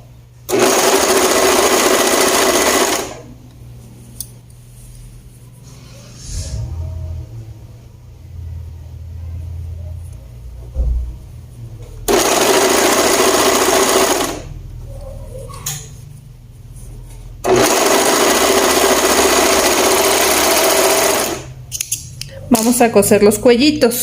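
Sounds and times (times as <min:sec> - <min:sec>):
electric sewing machine stitching: 0:00.5 - 0:03.2, 0:12.1 - 0:14.5, 0:17.4 - 0:21.5.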